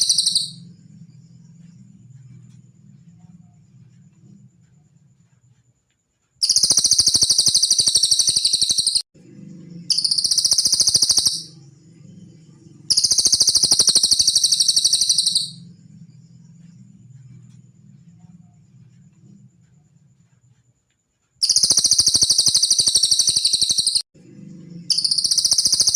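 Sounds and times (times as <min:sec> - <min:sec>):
songbird trilling: 0:00.0 - 0:00.6, 0:06.4 - 0:09.0, 0:09.9 - 0:11.6, 0:12.9 - 0:15.6, 0:21.4 - 0:24.0, 0:24.9 - 0:25.9
faint low hum: 0:00.0 - 0:07.2, 0:09.2 - 0:21.8, 0:24.2 - 0:25.9.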